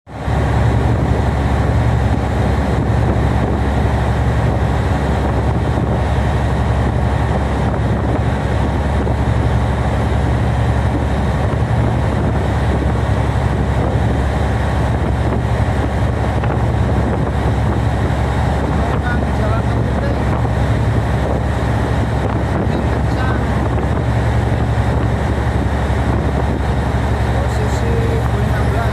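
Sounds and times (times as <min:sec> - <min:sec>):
diesel engine low drone: 0:00.1 - 0:28.9
wind blowing over microphone: 0:00.1 - 0:28.9.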